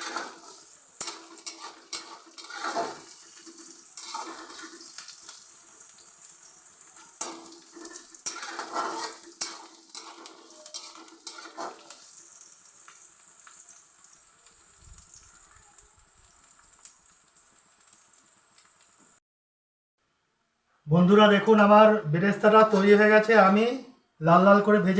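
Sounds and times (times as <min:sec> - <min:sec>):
spoon scraping a pan: 0:00.0 - 0:12.6
onions sizzling in hot oil: 0:00.0 - 0:19.2.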